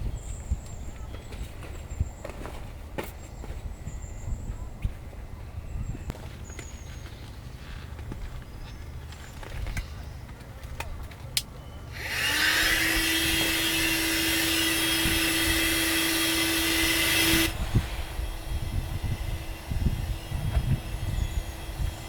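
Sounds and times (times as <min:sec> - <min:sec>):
small electric blower motor: 0:11.9 - 0:22.0.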